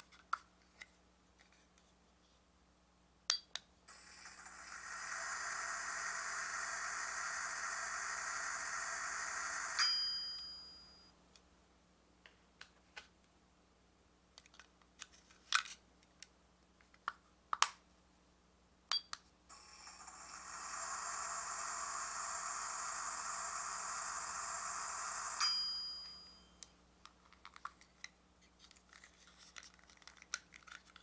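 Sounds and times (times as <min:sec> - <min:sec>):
toy microwave hum: 0:03.9 - 0:11.0, 0:19.5 - 0:26.7
microwave ding: 0:09.8 - 0:11.1, 0:25.2 - 0:26.6
small plastic clicks: 0:27.3 - 0:31.0.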